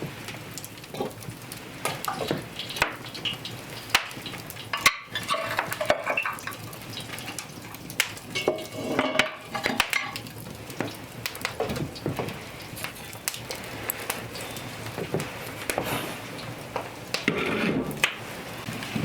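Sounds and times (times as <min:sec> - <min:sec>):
utensil scraping a pot: 0:04.8 - 0:06.4, 0:08.4 - 0:10.2, 0:17.2 - 0:18.2.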